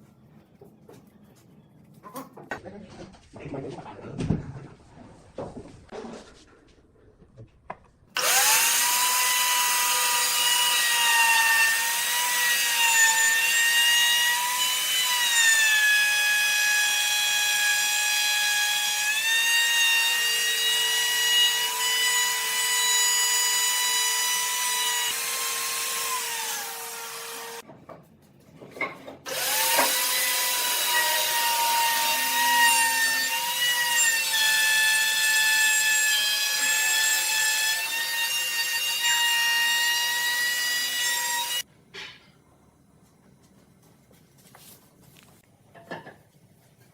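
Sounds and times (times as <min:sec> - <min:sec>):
power tool motor whine: 0:08.2 - 0:15.6, 0:23.6 - 0:27.6, 0:29.3 - 0:32.0.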